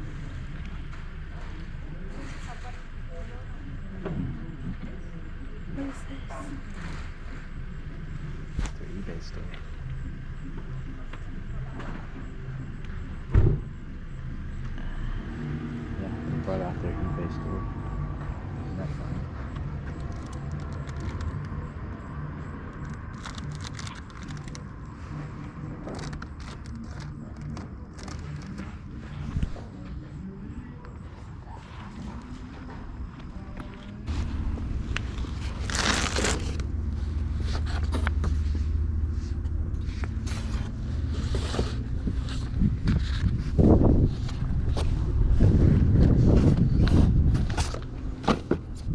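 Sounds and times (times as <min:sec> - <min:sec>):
vehicle engine hum: 0:00.0 - 0:48.9
low rumble: 0:16.8 - 0:48.9.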